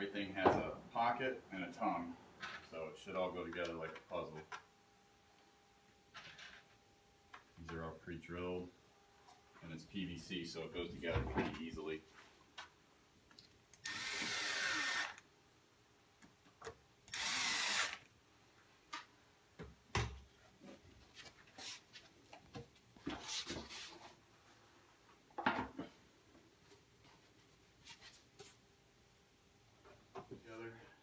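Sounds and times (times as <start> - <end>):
power drill driving screws: 13.8 - 15.2, 17.1 - 18.1.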